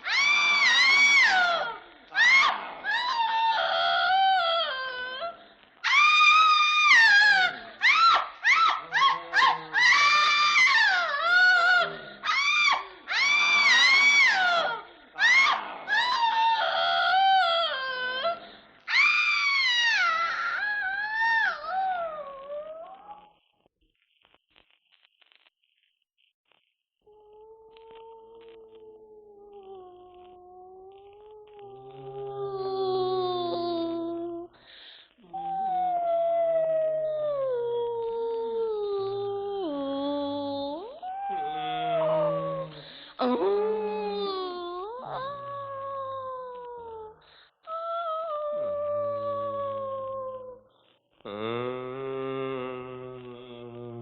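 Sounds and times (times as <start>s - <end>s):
dog howling and whining: 0.0s - 23.4s, 35.2s - 50.7s.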